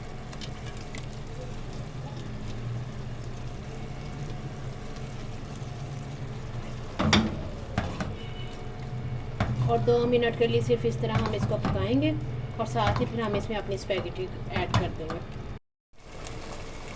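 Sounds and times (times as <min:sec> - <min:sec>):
food frying in a pan: 0:00.0 - 0:11.4, 0:16.0 - 0:16.9.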